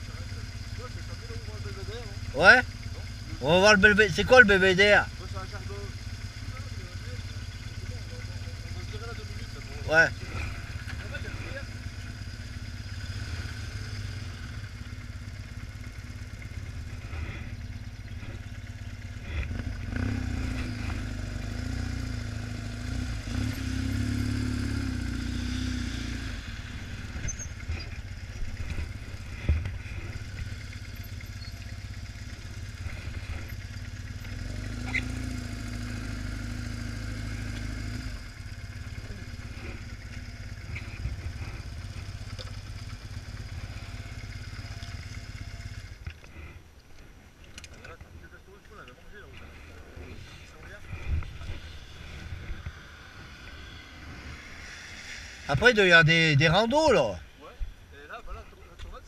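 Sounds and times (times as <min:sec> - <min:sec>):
motorcycle engine running: 0:00.0 - 0:59.0
road noise: 0:00.0 - 0:59.0.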